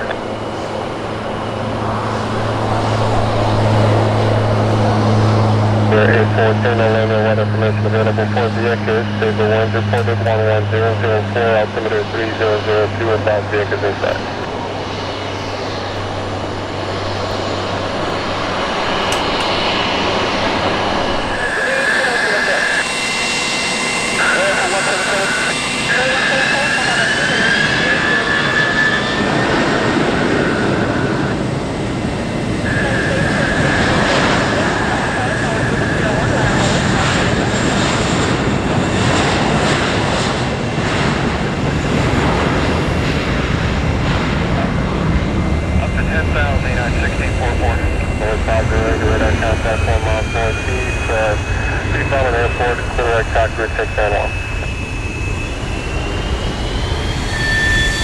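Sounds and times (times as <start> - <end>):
high whine: 0.0 - 30.3, 43.8 - 58.0
turboprop engine running: 0.0 - 58.0.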